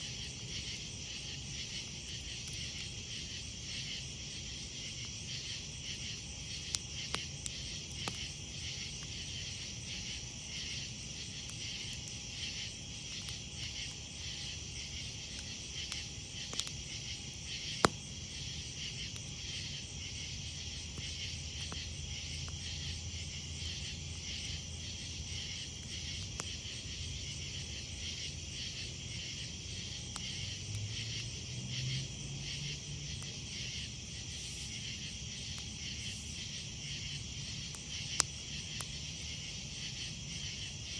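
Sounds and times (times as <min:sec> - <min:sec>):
campfire crackling: 0:00.0 - 0:40.9
night insects chirping: 0:00.0 - 0:40.9.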